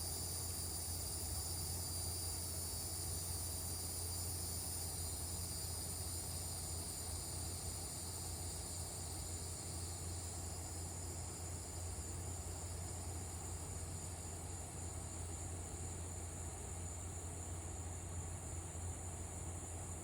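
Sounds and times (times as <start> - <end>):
crickets and cicadas trilling: 0.0 - 20.0.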